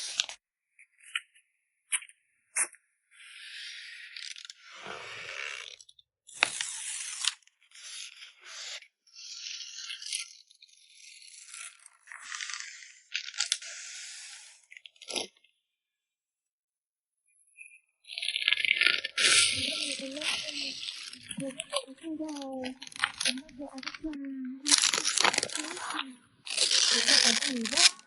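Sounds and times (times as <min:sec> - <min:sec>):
packaging crinkling and rustling: 0:18.2 - 0:28.0.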